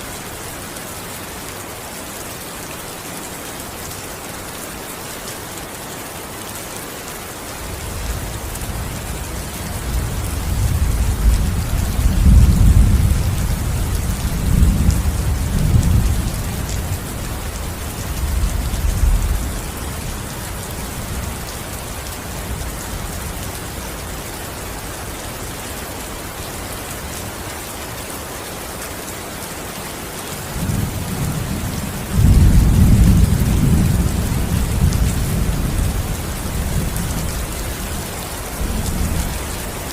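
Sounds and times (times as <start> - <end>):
steady rain falling: 0.0 - 39.9
low rumbles of thunder: 9.6 - 17.0, 30.6 - 37.3.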